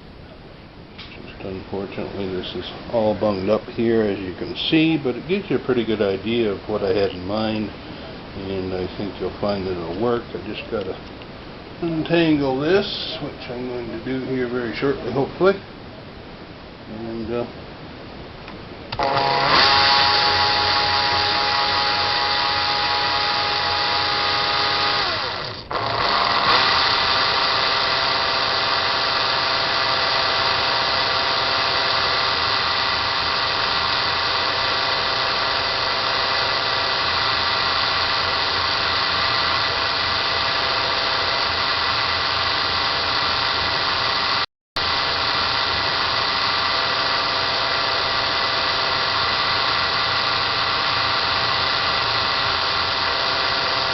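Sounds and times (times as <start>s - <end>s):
cordless drill motor whine: 18.9s - 53.9s.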